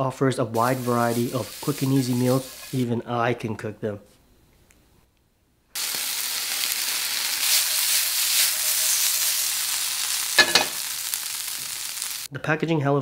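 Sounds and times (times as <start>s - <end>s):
food sizzling in a frying pan: 0.5s - 2.9s, 5.8s - 12.3s.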